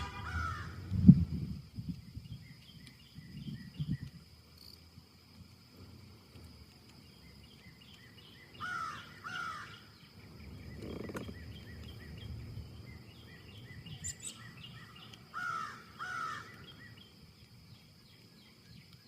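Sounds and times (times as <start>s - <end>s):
wind in trees: 0.0s - 19.0s
bird calling: 7.1s - 17.1s.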